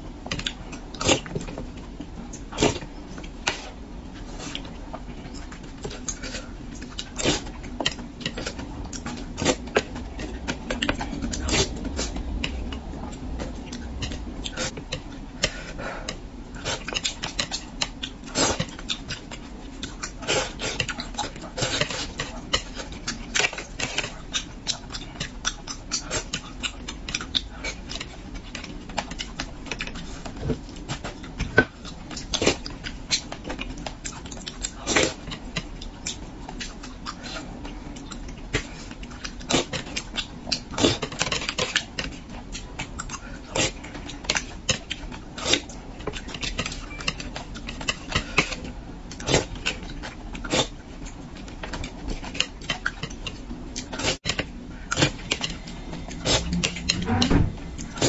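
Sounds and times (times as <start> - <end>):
wet chewing and lip-smacking: 16.6 - 57.0.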